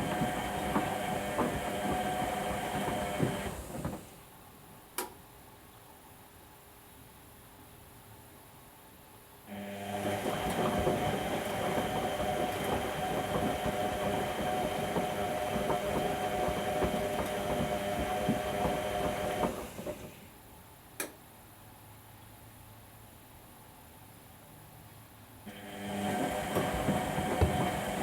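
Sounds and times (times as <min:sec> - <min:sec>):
washing machine drum turning: 0:00.0 - 0:04.0, 0:10.1 - 0:20.0, 0:25.6 - 0:28.0.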